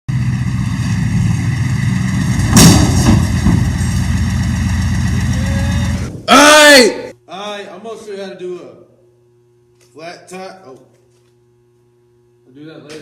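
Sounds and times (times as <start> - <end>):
engine idling: 0.1 - 6.3
loud sharp bang: 2.3 - 4.2.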